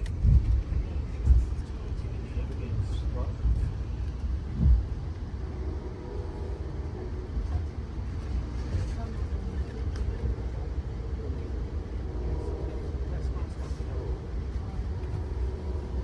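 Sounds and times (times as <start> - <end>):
train rumbling: 0.0 - 16.0
faint voices: 0.4 - 5.2, 6.3 - 16.0.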